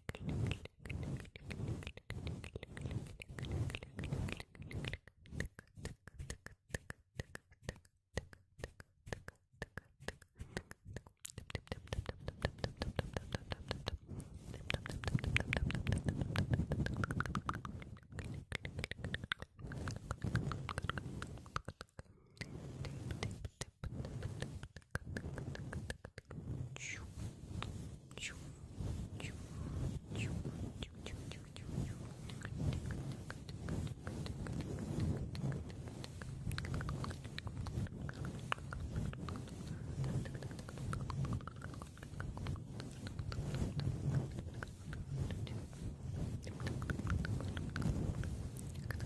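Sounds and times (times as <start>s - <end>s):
wet mouth clicks and smacks: 0.0s - 26.4s, 33.6s - 43.9s.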